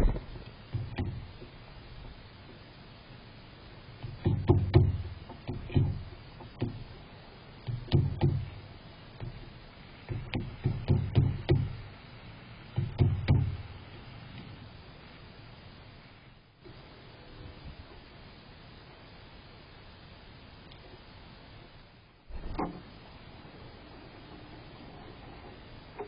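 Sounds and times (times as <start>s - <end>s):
sharp taps and knocks: 0.0s - 1.6s, 4.0s - 6.8s, 7.6s - 8.5s, 9.2s - 9.5s, 10.1s - 11.8s, 12.8s - 13.6s.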